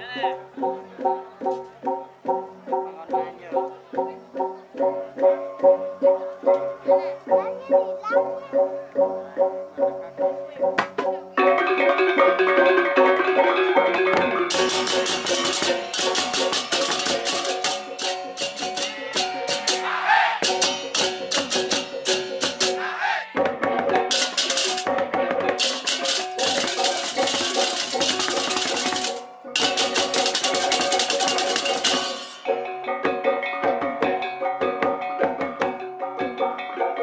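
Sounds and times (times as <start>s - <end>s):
ringing gong and metallophone: 11.4s - 22.8s, 25.6s - 37.0s
small cymbals clashing: 14.4s - 22.8s, 24.1s - 25.0s, 25.6s - 36.0s.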